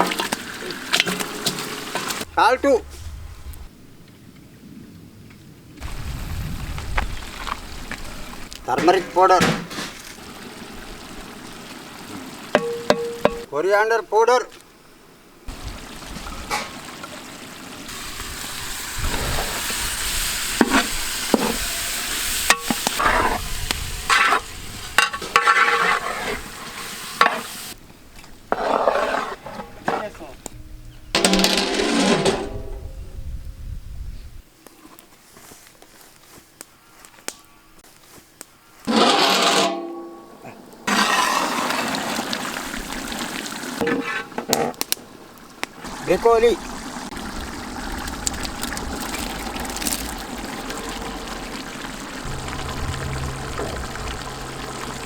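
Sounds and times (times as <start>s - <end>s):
curry sizzling in a pan: 5.8s - 13.5s, 15.5s - 27.8s, 40.9s - 55.0s
utensil scraping and knocking pan: 25.0s - 27.5s, 38.9s - 40.1s
liquid splashing into a pot: 46.6s - 55.0s.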